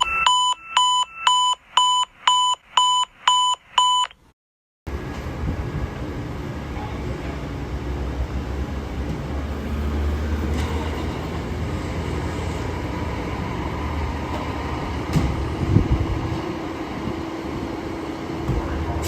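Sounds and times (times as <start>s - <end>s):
diesel engine rumbling: 4.9s - 19.0s.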